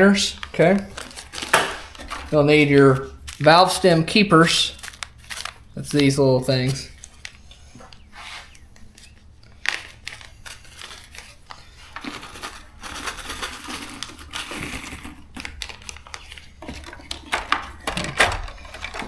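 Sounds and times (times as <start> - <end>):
small metal parts clinking: 0.4 - 6.1, 12.0 - 19.0.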